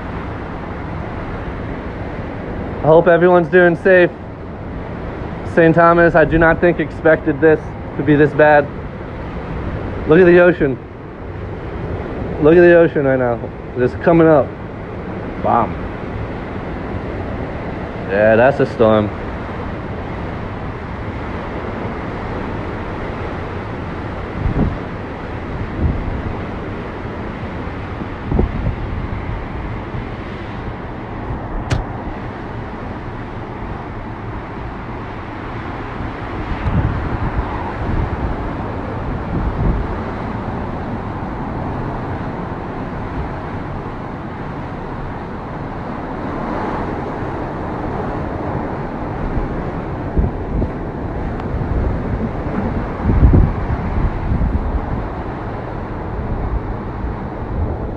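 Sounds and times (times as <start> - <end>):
strong wind blowing: 0.0 - 57.9
wind buffeting microphone: 0.0 - 57.9
sharp click: 31.6 - 31.9.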